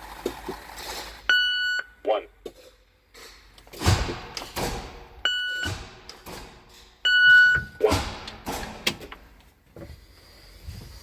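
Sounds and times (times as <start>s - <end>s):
knocks and thumps: 3.7s - 6.7s
electronic beeps: 5.2s - 5.7s.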